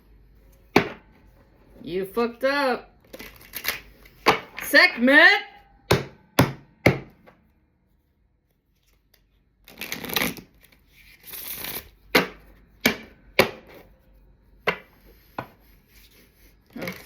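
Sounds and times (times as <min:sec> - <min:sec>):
cards shuffling: 0:08.7 - 0:12.0.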